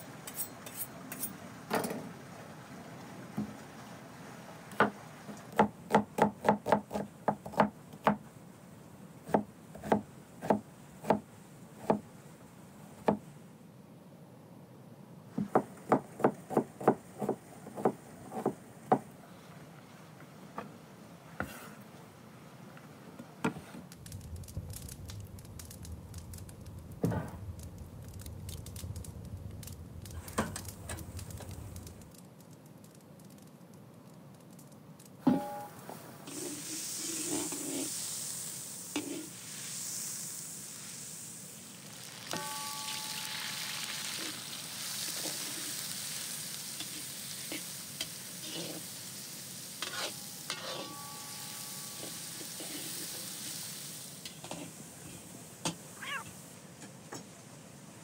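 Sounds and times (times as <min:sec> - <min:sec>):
low steady hum: 0:07.2 - 0:36.3.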